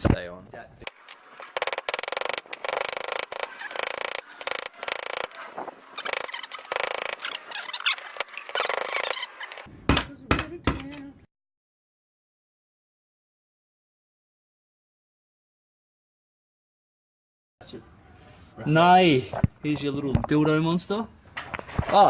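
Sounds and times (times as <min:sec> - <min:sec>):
hand tools scraping and clicking metal: 0:00.8 - 0:09.7.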